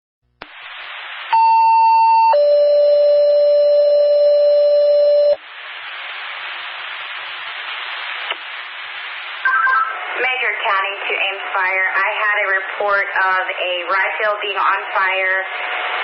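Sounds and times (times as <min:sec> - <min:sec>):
radio channel hiss: 0:00.4 - 0:02.4, 0:05.2 - 0:16.0
two-tone paging tone: 0:01.4 - 0:05.4.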